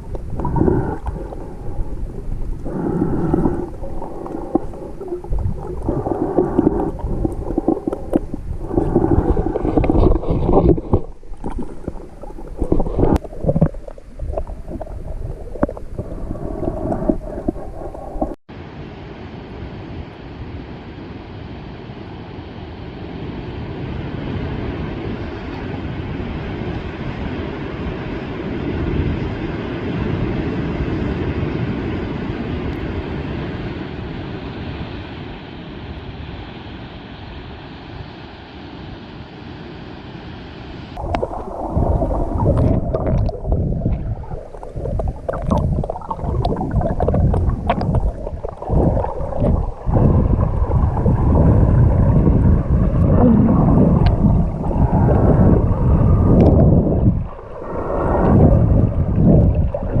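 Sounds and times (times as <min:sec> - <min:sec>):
rushing noise on microphone: 0:00.0 - 0:18.4, 0:40.8 - 1:00.0
water sloshing and gurgling: 0:00.0 - 0:18.5, 0:41.0 - 1:00.0.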